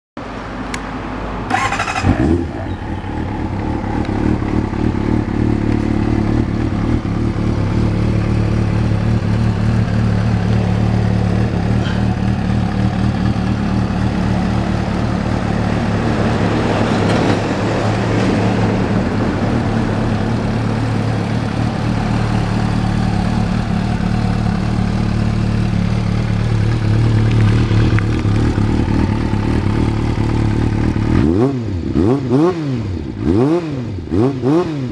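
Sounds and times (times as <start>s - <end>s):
motorcycle engine starting and idling: 0.7s - 34.9s.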